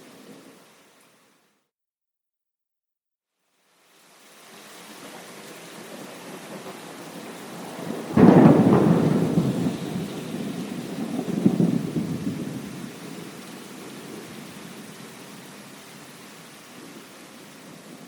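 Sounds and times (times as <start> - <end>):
steady rain: 0.0 - 1.6, 3.4 - 18.0
thunder rumbling: 5.8 - 14.9.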